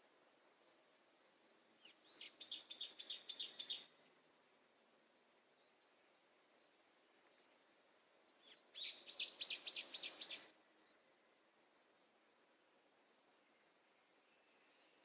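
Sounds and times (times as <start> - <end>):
faint bird twittering: 0.6 - 15.0
songbird singing descending notes: 1.8 - 3.9, 8.4 - 10.5.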